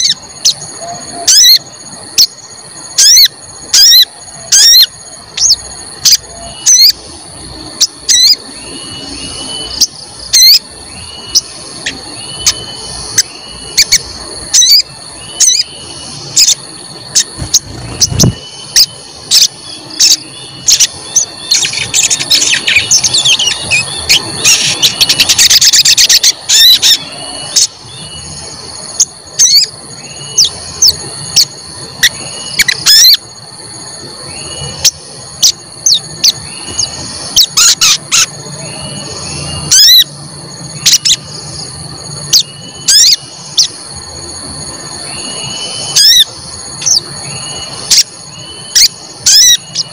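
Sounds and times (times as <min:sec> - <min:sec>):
steady high-pitched tone: 0:00.0 - 0:49.9
bird squeaky chirps: 0:03.0 - 0:07.0, 0:07.8 - 0:28.3, 0:29.0 - 0:33.2, 0:42.3 - 0:43.7, 0:45.3 - 0:49.9.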